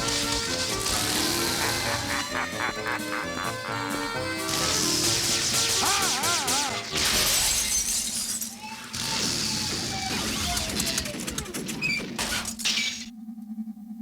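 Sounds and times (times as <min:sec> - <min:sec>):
cartoon crash and shattering: 0:00.0 - 0:02.2, 0:04.5 - 0:13.1
background music: 0:00.0 - 0:07.6.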